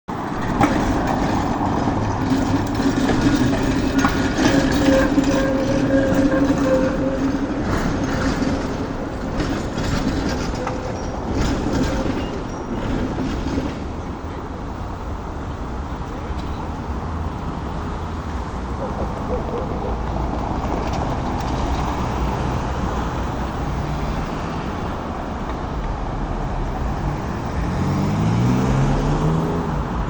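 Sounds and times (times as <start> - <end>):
tram motor hum: 0.1 - 30.0
wheels clacking over rail joints: 0.1 - 30.0.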